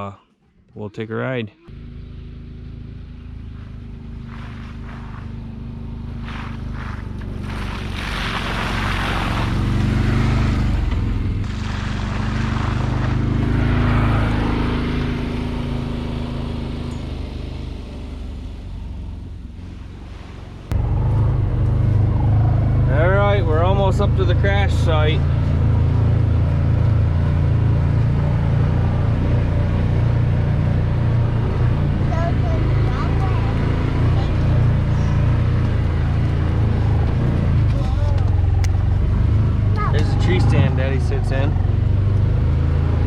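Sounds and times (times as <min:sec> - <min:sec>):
vehicle engine driving uphill: 0:01.7 - 0:43.0.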